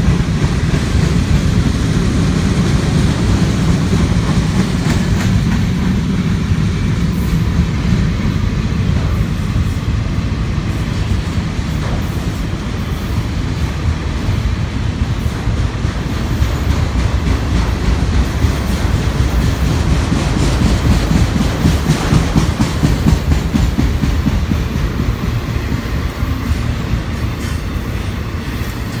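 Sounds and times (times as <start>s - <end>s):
steel wheels rumbling on rail: 0.0s - 29.0s
wheels clacking over rail joints: 0.0s - 29.0s.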